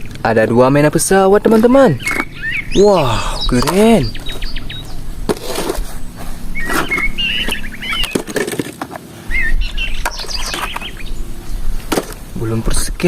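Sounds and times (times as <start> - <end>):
small birds chirping: 0.0 - 8.7, 9.3 - 13.0
plastic toys clicking and knocking: 8.0 - 9.0.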